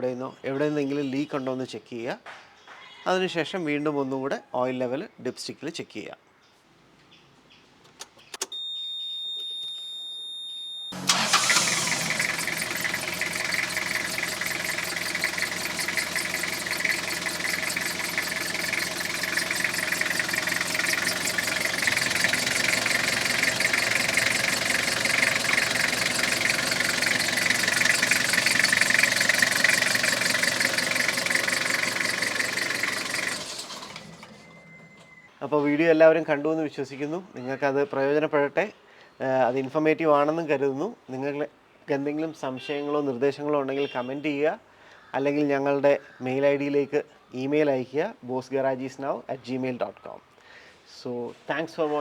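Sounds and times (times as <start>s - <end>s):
diesel engine starting and idling: 11.0s - 35.3s.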